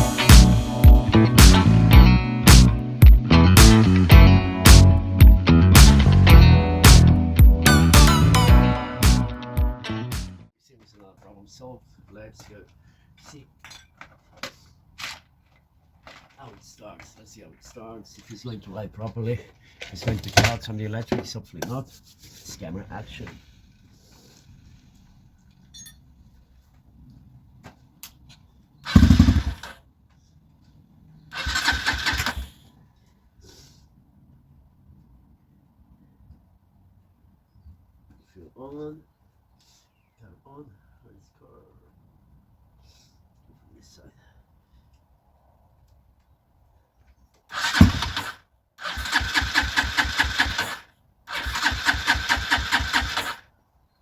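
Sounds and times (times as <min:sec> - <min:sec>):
electric starter cranking engine: 0:28.8 - 0:29.8, 0:31.3 - 0:32.6, 0:47.5 - 0:53.4.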